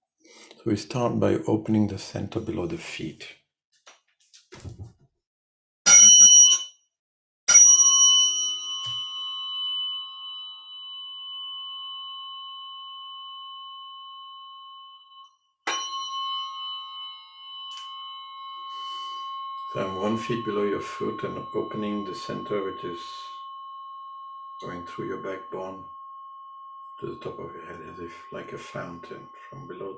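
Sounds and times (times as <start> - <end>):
tuning fork ringing: 5.9 - 6.8, 7.5 - 29.9
tuning fork clash: 7.7 - 29.9.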